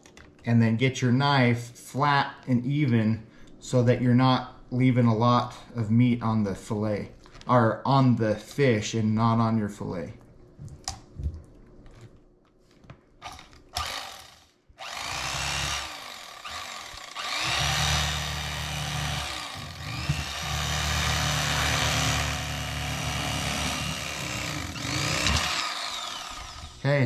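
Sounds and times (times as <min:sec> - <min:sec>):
electric fillet knife humming: 0:13.2 - 0:27.0.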